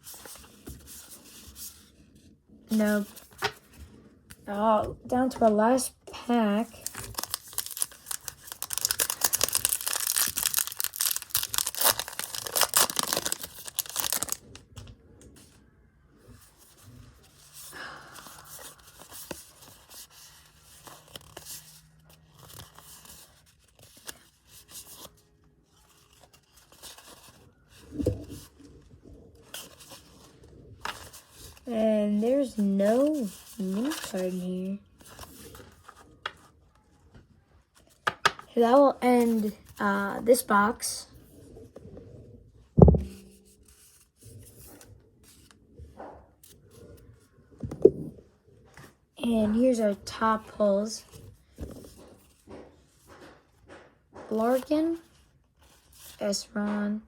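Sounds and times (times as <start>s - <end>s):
cards rustling: 5.1s - 15.6s, 17.3s - 25.2s, 25.8s - 28.7s, 29.4s - 36.5s, 37.8s - 40.8s
foil wrapper crinkling and tearing: 6.7s - 14.6s.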